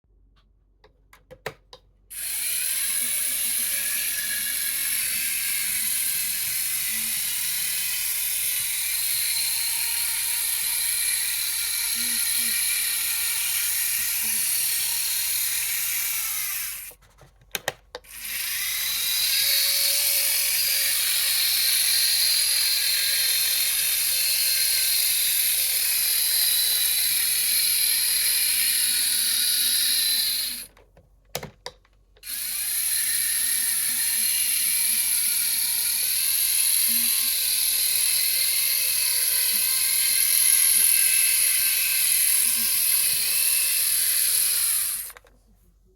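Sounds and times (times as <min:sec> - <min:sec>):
model locomotive gears whirring: 0:02.1 - 0:17.0, 0:18.0 - 0:30.8, 0:32.2 - 0:45.3.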